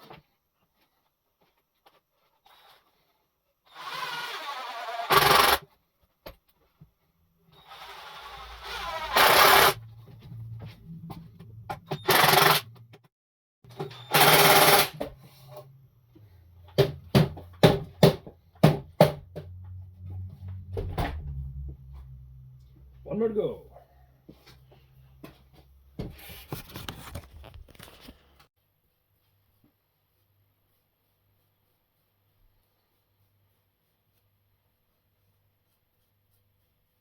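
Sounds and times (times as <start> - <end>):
power screwdriver driving screws: 3.7 - 5.6, 7.6 - 9.8, 12.0 - 12.7, 13.9 - 15.0.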